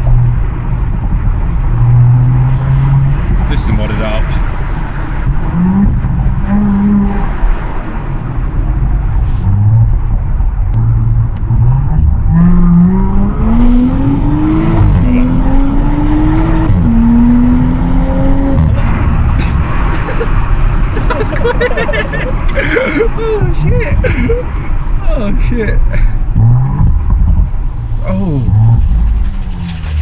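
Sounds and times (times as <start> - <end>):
car engine accelerating hard: 0.0 - 30.0.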